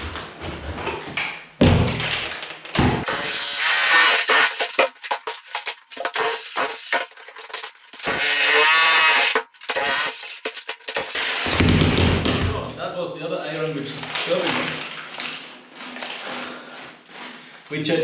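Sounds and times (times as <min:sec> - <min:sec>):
power drill motor: 0:03.0 - 0:11.4.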